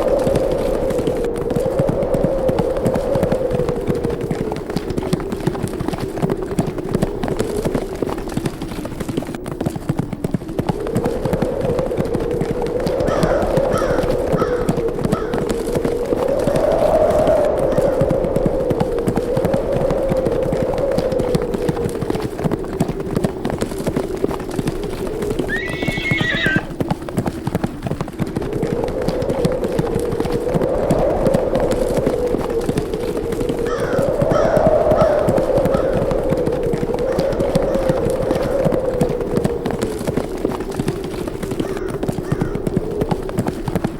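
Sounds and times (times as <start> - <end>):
horses galloping: 0.0 - 43.9
wind moaning: 0.0 - 43.9
horse whinnying: 25.5 - 26.7.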